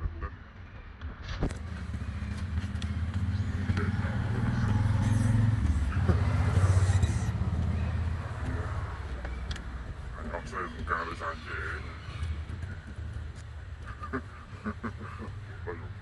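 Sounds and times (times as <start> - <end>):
vehicle engine passing by: 1.6 - 9.6.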